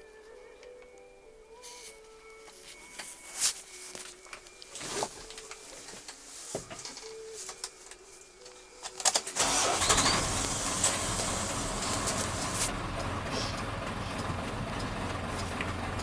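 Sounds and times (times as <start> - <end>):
diesel engine idling: 9.4 - 16.0.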